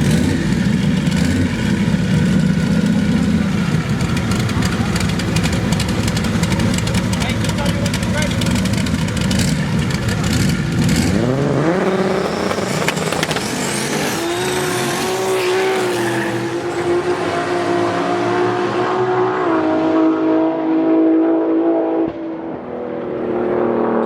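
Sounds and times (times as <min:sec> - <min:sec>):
race car engines revving: 0:00.0 - 0:24.0.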